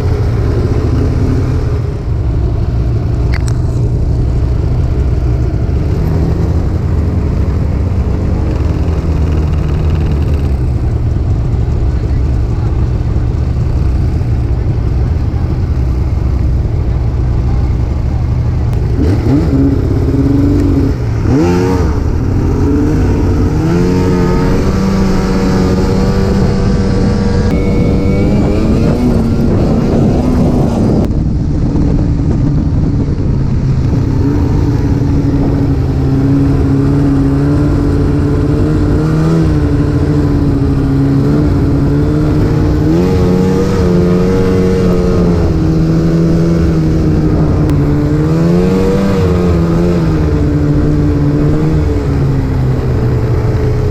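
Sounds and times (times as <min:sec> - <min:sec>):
snowmobile engine at speed: 0:00.0 - 0:53.9
wind and track noise: 0:00.0 - 0:53.9.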